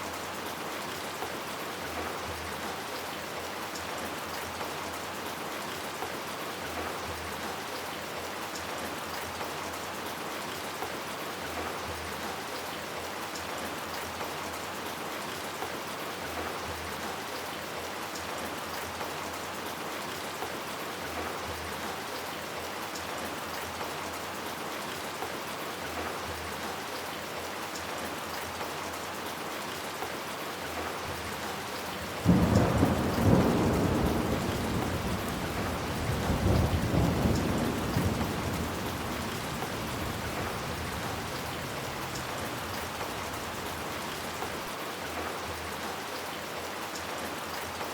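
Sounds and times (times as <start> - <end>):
steady rain falling: 0.0 - 47.9
thunder clap rumbling: 32.2 - 44.4.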